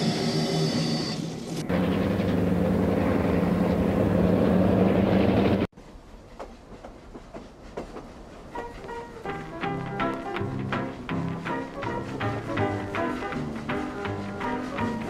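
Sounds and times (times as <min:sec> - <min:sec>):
train rumble with rail clatter: 0:00.0 - 0:15.0
soft music: 0:08.5 - 0:15.0.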